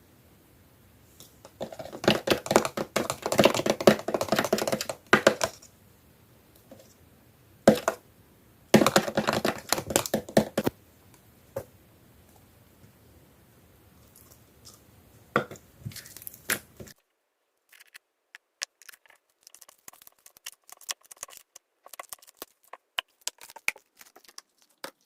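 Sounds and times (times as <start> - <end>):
slime clicking and popping: 17.7 - 25.0.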